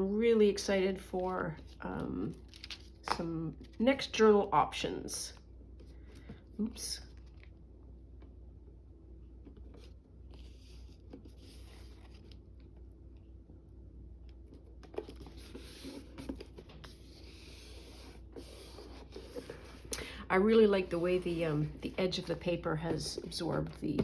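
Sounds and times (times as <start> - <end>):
paper rustling and scraping: 9.6 - 12.7, 14.8 - 24.0.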